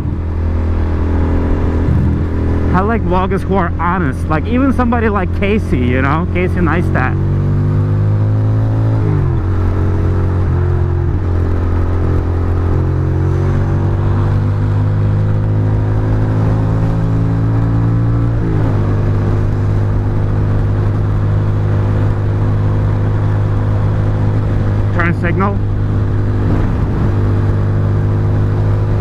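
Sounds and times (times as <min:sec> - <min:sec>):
wet road noise: 0:00.0 - 0:29.0
wind noise: 0:25.6 - 0:29.0.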